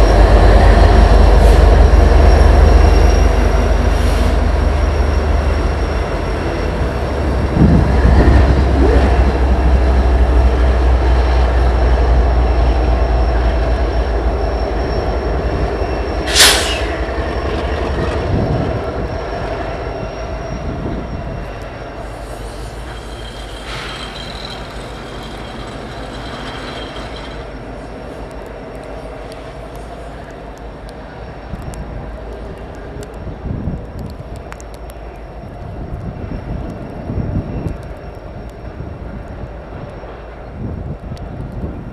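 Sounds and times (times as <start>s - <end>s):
diesel locomotive engines rumbling: 0.0s - 41.9s
wheel squeal: 17.7s - 28.1s.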